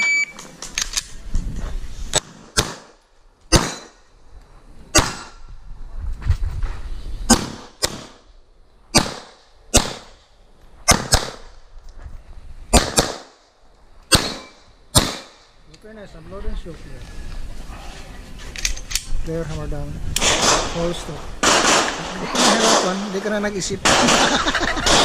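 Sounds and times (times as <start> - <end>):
pistol shots with echo: 2.2 - 4.0, 5.0 - 5.4, 8.9 - 10.1, 10.9 - 11.5, 12.7 - 13.4, 14.1 - 15.5, 21.4 - 23.2, 23.8 - 24.3.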